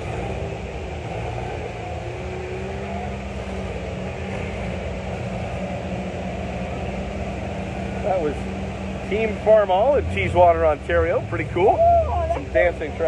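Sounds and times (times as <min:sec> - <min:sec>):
tractor engines running: 0:00.0 - 0:13.0.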